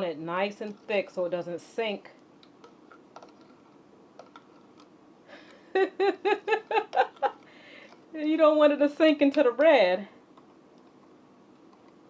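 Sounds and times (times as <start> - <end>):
person laughing: 5.4 - 7.5.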